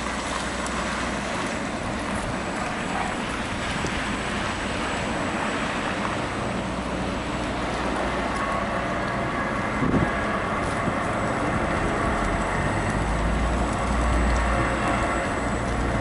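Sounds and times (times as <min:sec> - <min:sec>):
wind on microphone: 0:09.4 - 0:12.7.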